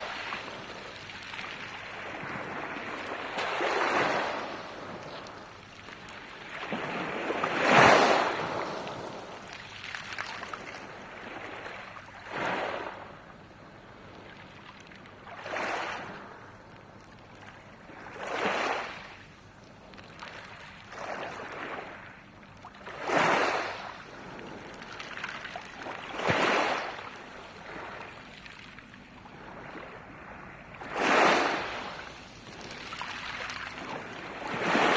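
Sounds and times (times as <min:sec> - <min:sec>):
waves washing over pebbles: 0:00.0 - 0:13.0, 0:15.3 - 0:16.1, 0:22.7 - 0:34.9.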